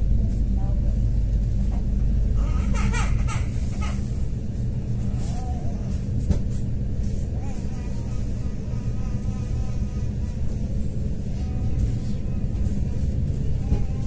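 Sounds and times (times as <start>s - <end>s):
faint traction motor hum: 0.0s - 14.0s
passengers' voices: 0.0s - 14.0s
train wheels rumbling on rail: 0.0s - 14.0s.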